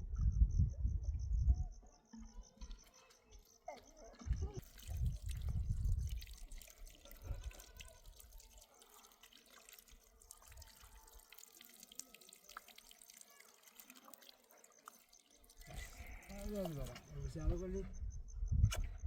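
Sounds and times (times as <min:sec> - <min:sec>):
water dripping and trickling: 0:02.5 - 0:17.8.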